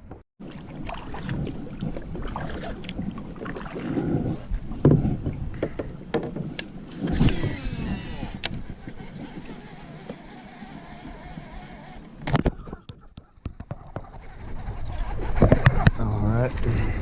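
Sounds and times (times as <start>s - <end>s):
water noise: 0.4s - 17.0s
kayak knocks and thumps: 4.7s - 7.7s
squeaky scraping: 7.1s - 16.2s.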